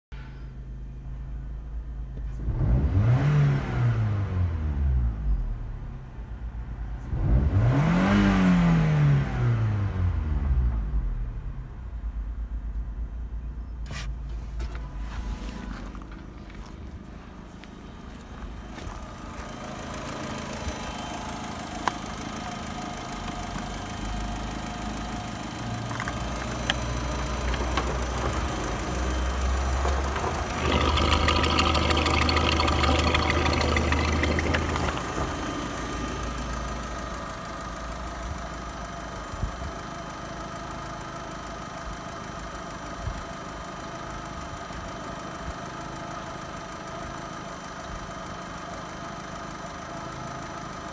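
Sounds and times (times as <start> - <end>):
car engine idling: 15.5 - 50.9
valve train clatter: 29.7 - 35.4.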